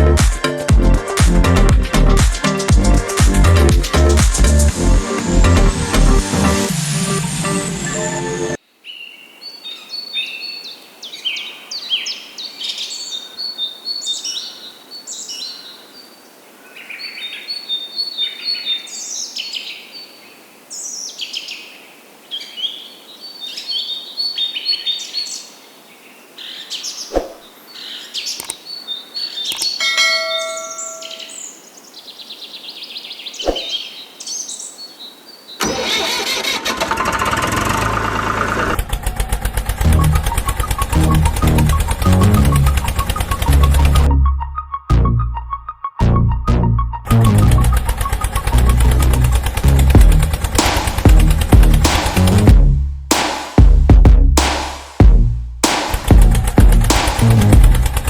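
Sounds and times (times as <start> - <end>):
small birds chirping: 8.8 - 35.7, 39.7 - 46.0
sharp clicks: 28.3 - 28.6, 29.5 - 29.8, 47.6 - 52.4, 55.6 - 58.0
motor running with rattle: 36.6 - 44.0, 47.5 - 52.4, 56.2 - 58.0.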